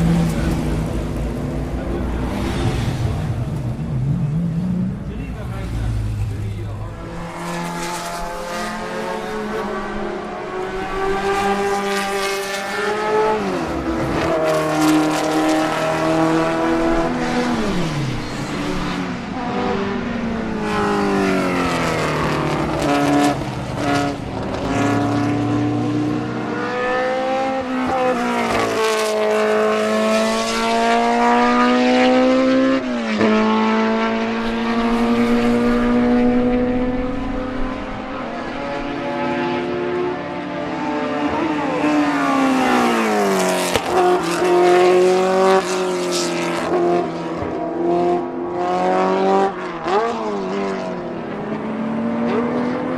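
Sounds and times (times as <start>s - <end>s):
racing engine revving: 0.0s - 52.9s.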